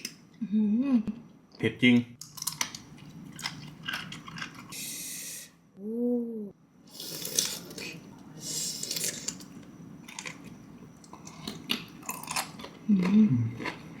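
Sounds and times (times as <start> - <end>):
person humming: 0.4 - 1.1, 5.8 - 6.5, 12.9 - 13.6
person chewing crunchy food: 8.7 - 14.0.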